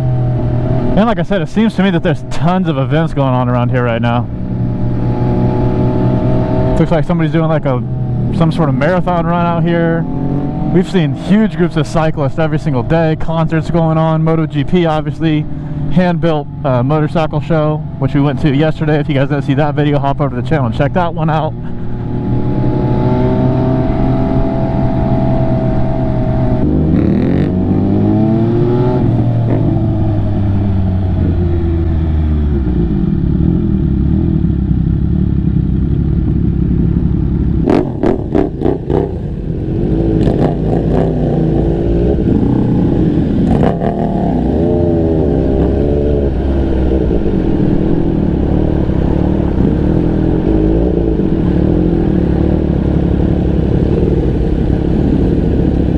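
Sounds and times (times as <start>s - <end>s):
motorcycle engine revving: 0.0s - 18.8s, 21.2s - 55.9s.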